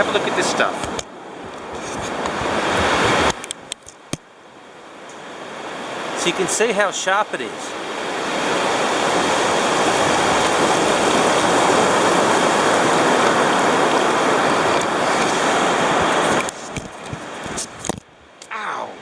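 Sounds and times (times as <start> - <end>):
sea water rushing over rocks: 0.0 - 18.7.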